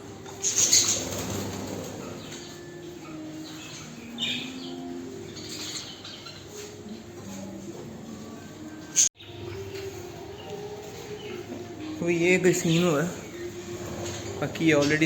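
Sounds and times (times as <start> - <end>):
budgies fluttering wings: 0.3 - 2.6.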